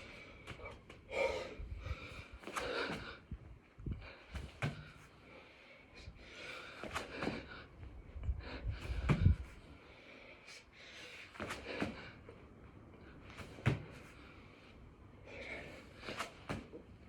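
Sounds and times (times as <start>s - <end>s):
man breathing hard: 0.0s - 12.4s, 15.2s - 16.4s
dull thuds on floor: 13.6s - 14.0s.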